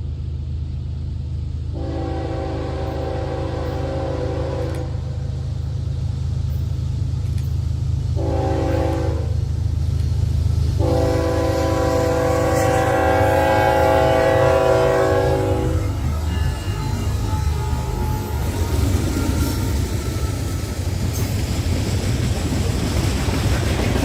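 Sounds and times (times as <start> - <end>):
diesel engine rumbling: 0.0 - 24.0
locomotive air horn blasts: 1.7 - 5.2, 8.2 - 9.4, 10.8 - 20.0.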